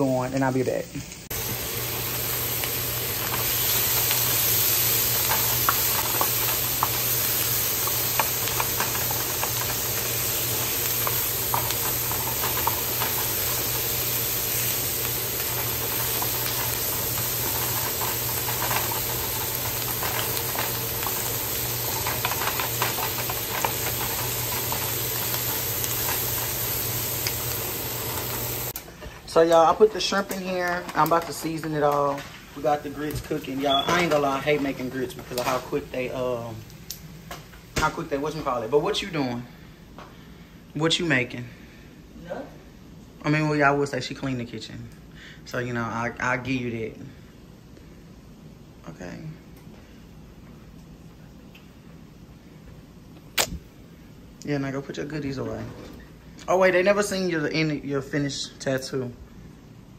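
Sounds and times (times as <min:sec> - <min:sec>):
food sizzling in a frying pan: 0:00.0 - 0:39.6
wooden spoon stirring: 0:01.3 - 0:35.9.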